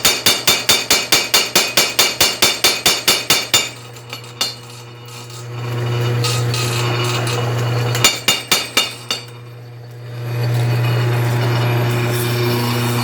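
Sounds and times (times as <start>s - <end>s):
power hammer striking anvil: 0.0s - 9.5s
electric motor humming: 9.2s - 13.0s.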